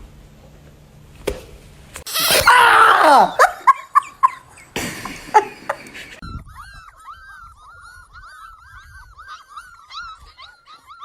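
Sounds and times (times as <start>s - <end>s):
dog whimpering: 6.4s - 11.0s
dog yelping: 6.5s - 11.0s.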